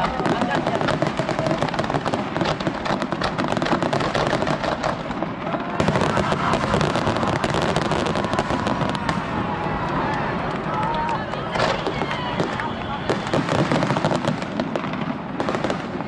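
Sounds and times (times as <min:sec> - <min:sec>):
fireworks crackling: 0:00.0 - 0:16.0.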